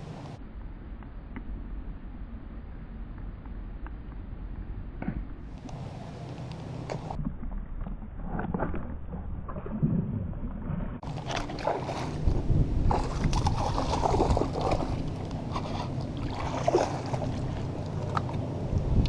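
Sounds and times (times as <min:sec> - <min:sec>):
water moving along shore: 0:00.0 - 0:00.4, 0:05.4 - 0:19.0
wind buffeting microphone: 0:11.0 - 0:19.0.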